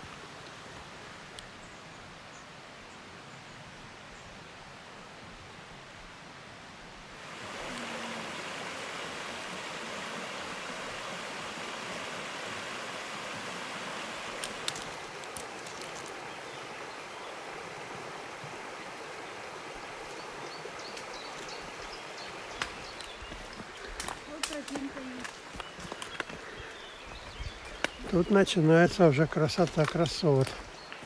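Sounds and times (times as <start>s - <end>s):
river rushing: 6.2s - 30.7s.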